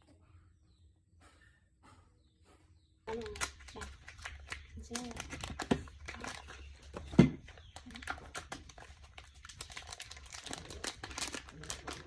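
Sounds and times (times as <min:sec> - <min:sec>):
crinkling with crackles: 0:03.1 - 0:12.0.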